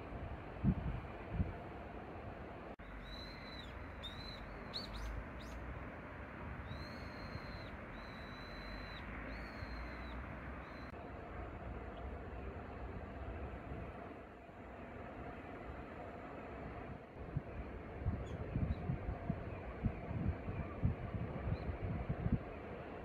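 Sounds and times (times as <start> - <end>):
small bird whistling: 3.0 - 5.6, 6.6 - 10.9.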